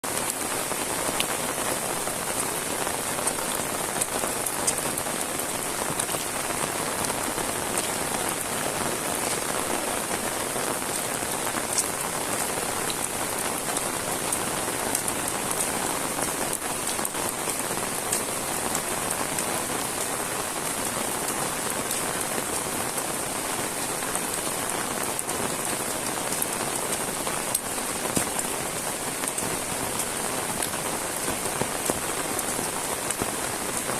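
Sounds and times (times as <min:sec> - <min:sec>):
heavy rain hissing: 0:00.0 - 0:33.9
sharp raindrop impacts: 0:00.0 - 0:33.9.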